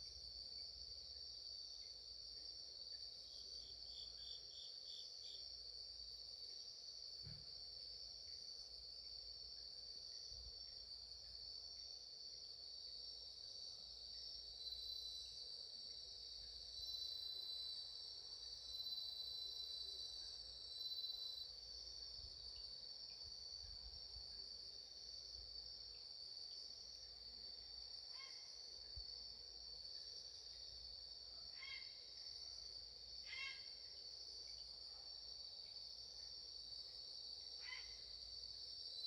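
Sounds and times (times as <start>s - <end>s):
lower insect trill: 0.0s - 39.0s
insects trilling high-pitched: 28.1s - 28.6s, 31.5s - 32.2s, 33.2s - 34.0s, 37.5s - 39.0s.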